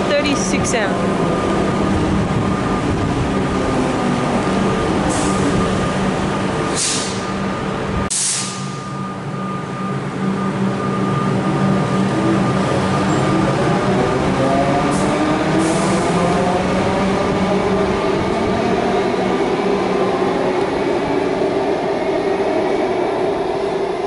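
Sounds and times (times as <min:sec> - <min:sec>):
train machinery hum: 0:00.0 - 0:24.0
air hisses: 0:06.8 - 0:07.3, 0:08.1 - 0:08.8.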